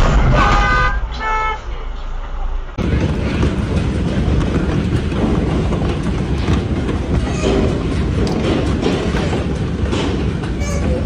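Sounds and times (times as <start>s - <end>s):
vehicle rumbling and clattering: 2.6s - 11.0s.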